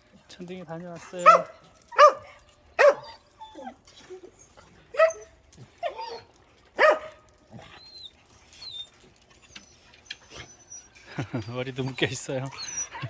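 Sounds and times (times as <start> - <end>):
dog barking: 1.2 - 3.1, 4.9 - 5.3, 6.8 - 7.2.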